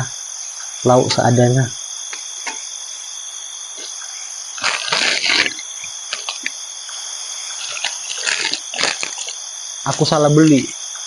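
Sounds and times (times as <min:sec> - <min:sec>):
crickets chirring: 0:00.0 - 0:11.0
rustling: 0:04.6 - 0:06.6, 0:07.5 - 0:09.4.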